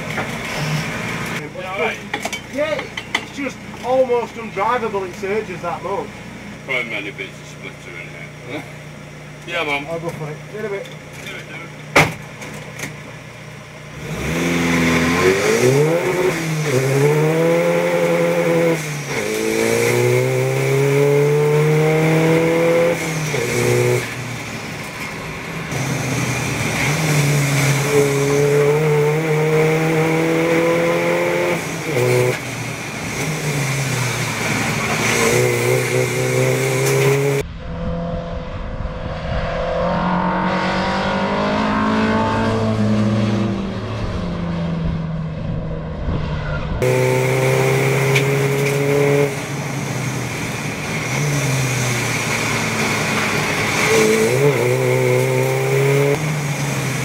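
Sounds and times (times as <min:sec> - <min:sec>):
car engine accelerating through gears: 0:13.9 - 0:57.0
distant race cars passing: 0:13.9 - 0:57.0.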